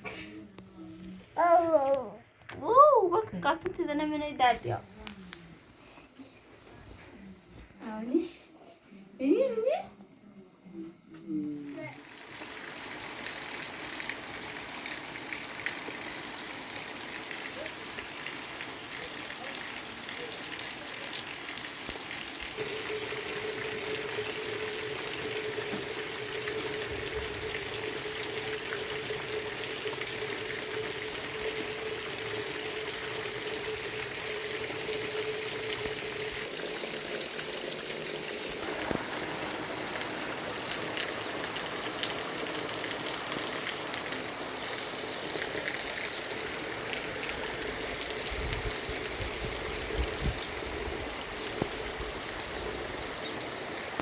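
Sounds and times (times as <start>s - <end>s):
trickling water: 11.5s - 54.0s
heavy rain: 11.8s - 37.1s, 38.4s - 54.0s.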